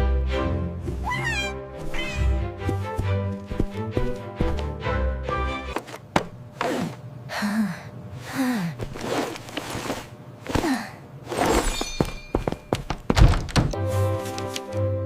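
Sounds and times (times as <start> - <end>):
person breathing hard: 6.8 - 8.9.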